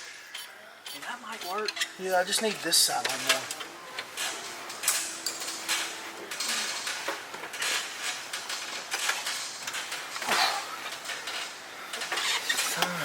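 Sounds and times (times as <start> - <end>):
metal tools clinking and scraping: 0.4 - 13.0.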